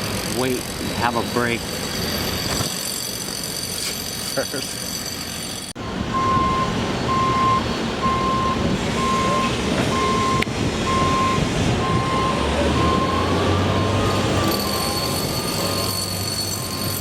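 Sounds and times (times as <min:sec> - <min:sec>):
vehicle reversing alarm beeping: 0:03.8 - 0:17.0.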